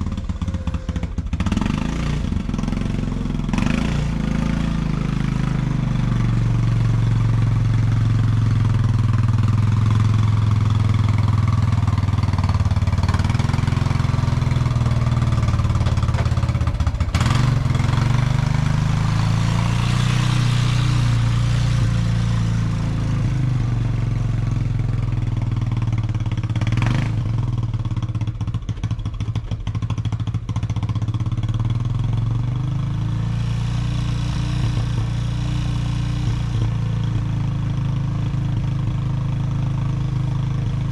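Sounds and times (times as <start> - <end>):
atv engine running: 0.0 - 40.9
clatter: 8.6 - 18.7, 25.0 - 32.0.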